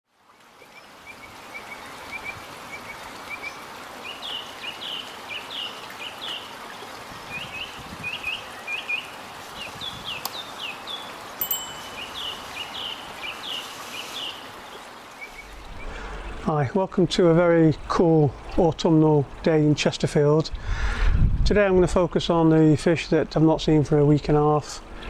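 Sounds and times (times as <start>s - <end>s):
small birds chirping: 7.2s - 16.6s
steady background hiss: 7.4s - 20.9s.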